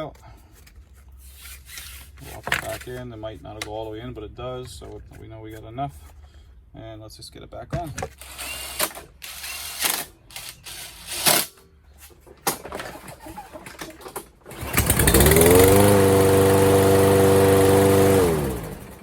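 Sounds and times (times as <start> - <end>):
mower engine starting and running: 12.5 - 19.0.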